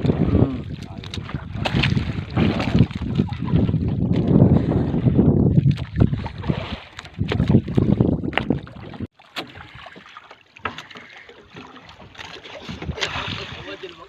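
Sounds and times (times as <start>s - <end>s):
wind buffeting microphone: 0.0s - 9.1s, 12.6s - 14.0s
water noise: 0.0s - 14.0s.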